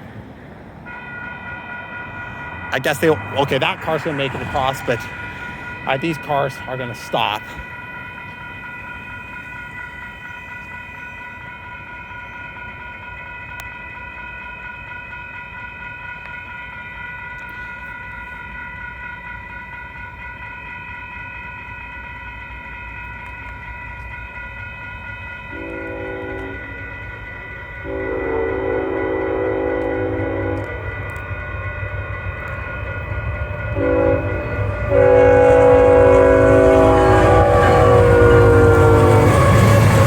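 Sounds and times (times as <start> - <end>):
crossing warning bell ringing: 0.0 - 40.0
freight train rumble: 0.0 - 40.0
locomotive horn blasts: 25.5 - 27.0, 27.8 - 31.2, 33.7 - 40.0.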